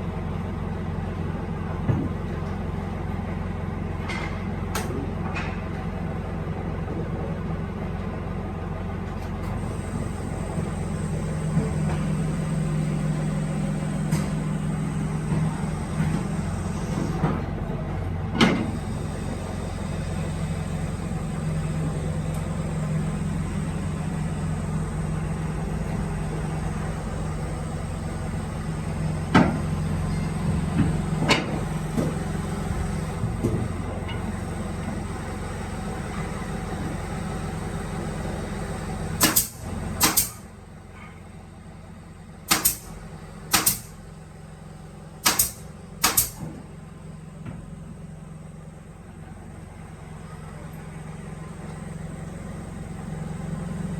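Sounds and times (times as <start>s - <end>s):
workshop machinery hum: 0.0s - 53.9s
high whine: 18.7s - 33.9s.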